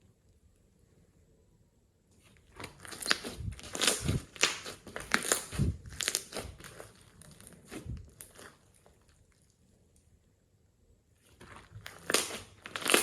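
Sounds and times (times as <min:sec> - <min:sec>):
slime squelching: 0:02.2 - 0:09.9, 0:11.2 - 0:13.0
slime crackling and clicking: 0:11.9 - 0:13.0.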